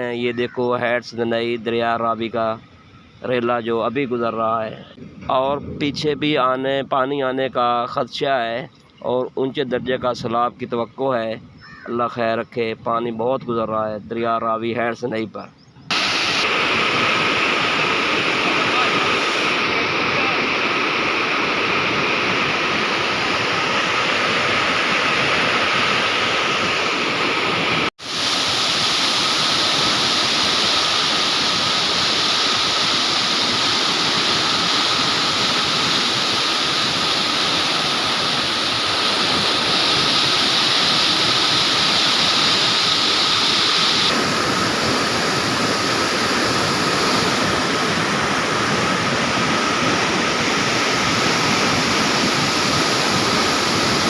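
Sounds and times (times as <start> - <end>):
floodwater rushing: 15.9 - 54.0.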